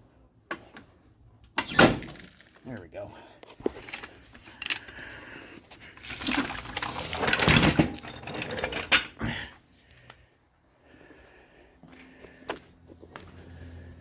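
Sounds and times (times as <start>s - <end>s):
metal rattling and scraping: 3.6s - 4.9s, 6.0s - 9.2s.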